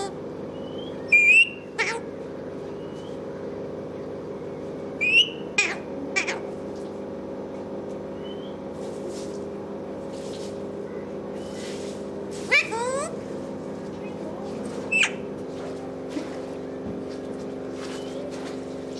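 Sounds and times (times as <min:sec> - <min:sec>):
steady low hum: 0:00.0 - 0:18.9
parrot squawking: 0:00.7 - 0:02.1, 0:05.0 - 0:06.5, 0:12.5 - 0:13.2, 0:14.9 - 0:15.3.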